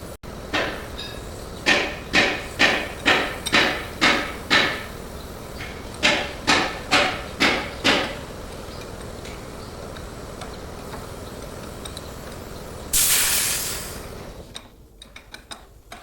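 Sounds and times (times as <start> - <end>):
hammer striking metal: 0.5 - 5.0, 5.6 - 8.2.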